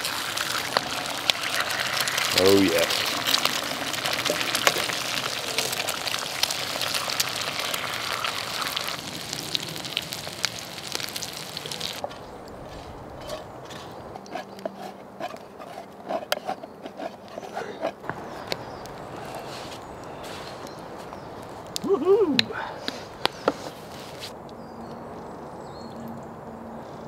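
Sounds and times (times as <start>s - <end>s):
food sizzling in a skillet: 0.0s - 12.0s.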